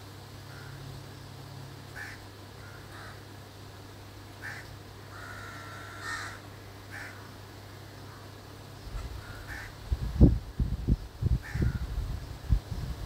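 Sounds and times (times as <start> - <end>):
steady low hum: 0.0 - 13.0
bird calling: 1.9 - 3.3, 4.4 - 7.4.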